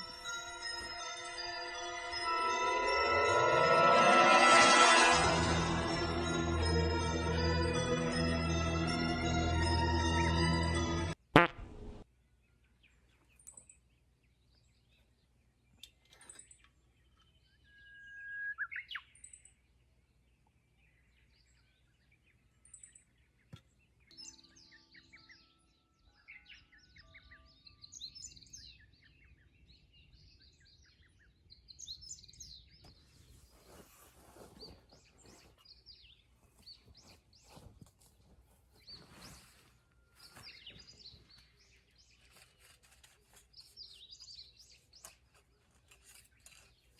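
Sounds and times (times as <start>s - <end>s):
wild birds chirping: 12.3s - 37.7s, 38.8s - 46.9s.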